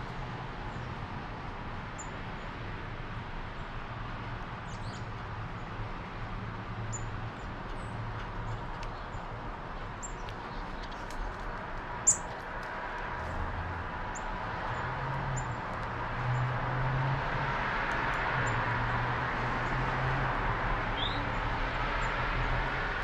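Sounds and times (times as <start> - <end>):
small birds chirping: 4.6 - 5.7, 6.9 - 12.4, 21.0 - 21.3.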